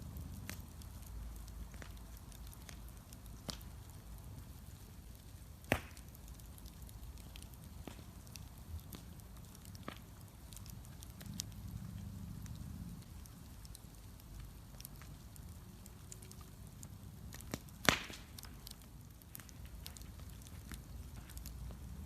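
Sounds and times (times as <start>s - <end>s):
bonfire rumble and crackles: 0.0s - 22.0s
loud sharp fire pop: 5.7s - 6.0s, 17.8s - 18.3s.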